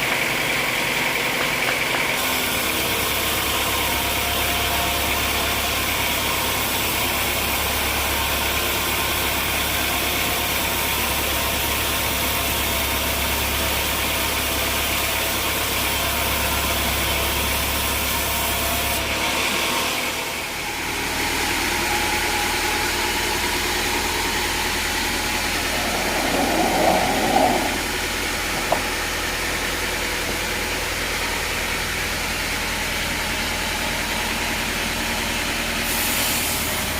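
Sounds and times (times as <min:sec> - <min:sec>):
engine humming: 0:20.4 - 0:33.5.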